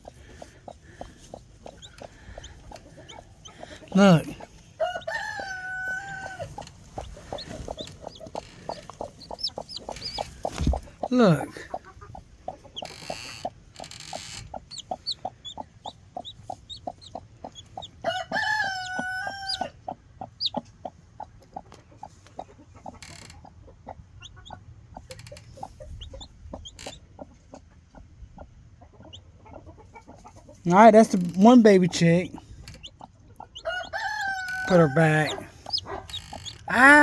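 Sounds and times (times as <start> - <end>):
drawn-out chicken call: 0.0 - 12.0, 17.8 - 19.8, 32.7 - 37.0
chick peeping: 0.0 - 37.0
hen clucking: 0.0 - 37.0
rustling: 6.2 - 11.1.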